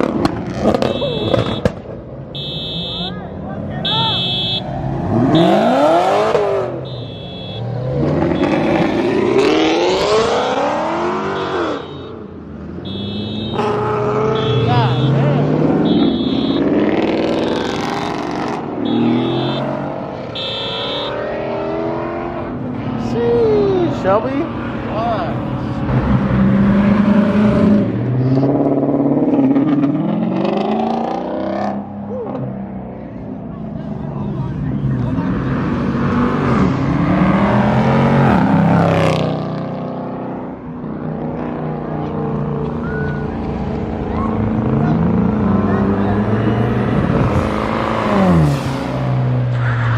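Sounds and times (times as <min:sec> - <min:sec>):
car engines revving: 0:00.0 - 0:49.9
car engine revving hard: 0:04.8 - 0:06.8, 0:07.8 - 0:11.8
high beeping tone: 0:15.8 - 0:16.7, 0:18.8 - 0:19.8.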